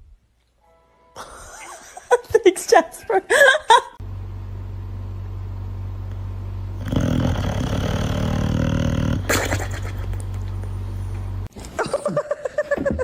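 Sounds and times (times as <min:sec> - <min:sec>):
low hum: 0:04.0 - 0:06.9
dog growling: 0:06.8 - 0:09.6.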